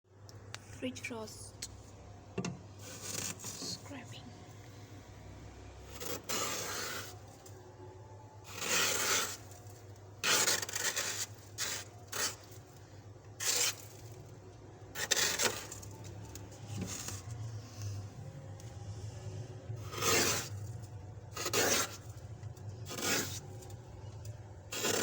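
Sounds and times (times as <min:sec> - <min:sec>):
frost being scraped: 0:02.8 - 0:04.1, 0:05.8 - 0:07.5, 0:08.4 - 0:14.3, 0:14.9 - 0:17.9, 0:19.0 - 0:25.0
steady low hum: 0:11.3 - 0:25.0.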